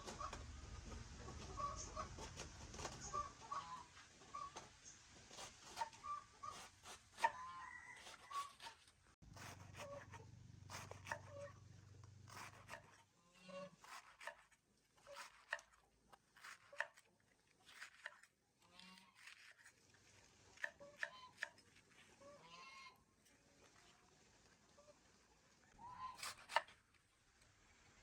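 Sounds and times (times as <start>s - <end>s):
chickens clucking: 0.0s - 4.7s, 5.8s - 6.6s.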